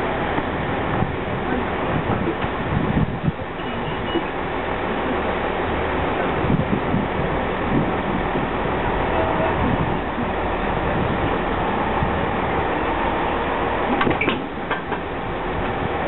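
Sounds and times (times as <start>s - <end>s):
diesel train engines running: 0.0s - 16.0s.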